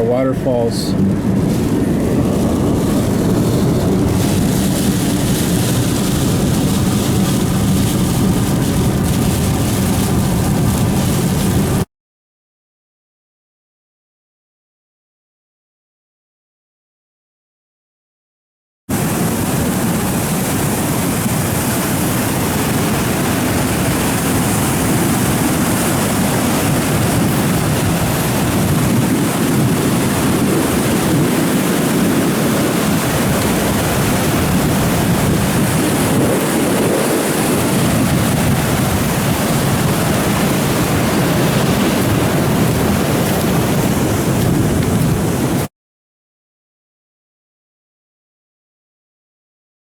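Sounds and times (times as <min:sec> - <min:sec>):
floodwater rushing: 0:00.0 - 0:11.8, 0:19.0 - 0:45.7.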